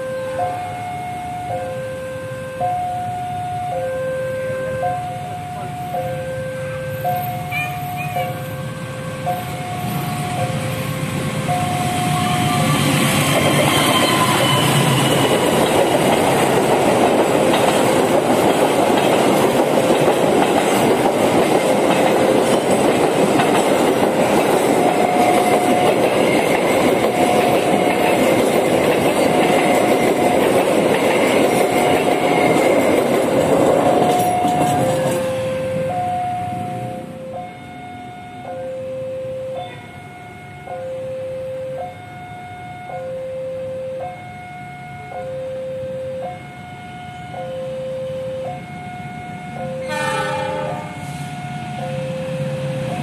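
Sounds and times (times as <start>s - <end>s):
level-crossing warning alarm: 0.0s - 53.0s
train rumbling past: 0.0s - 53.0s
wheels clacking on rails: 4.7s - 38.8s.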